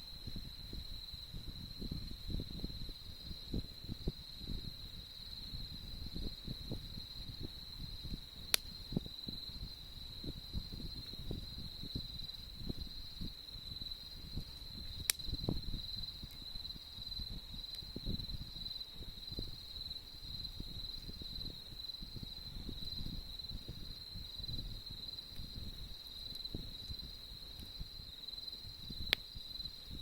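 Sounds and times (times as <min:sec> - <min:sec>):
campfire crackling: 0:00.0 - 0:30.0
insects trilling: 0:00.1 - 0:30.0
burning wood popping: 0:07.2 - 0:09.8, 0:14.0 - 0:16.6.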